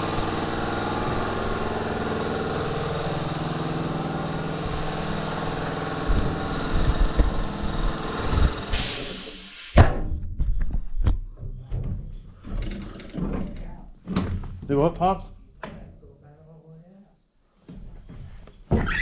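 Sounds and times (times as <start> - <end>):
tractor engine running: 0.0 - 9.0.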